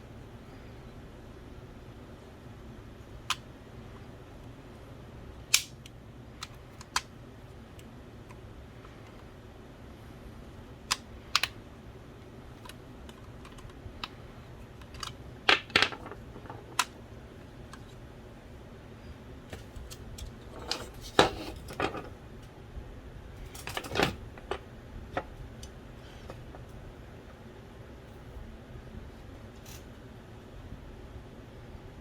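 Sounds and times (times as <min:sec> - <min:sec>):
faint steady hum: 0:00.0 - 0:32.0
clicks and taps of small parts: 0:05.5 - 0:07.1, 0:10.9 - 0:11.6, 0:12.6 - 0:17.0.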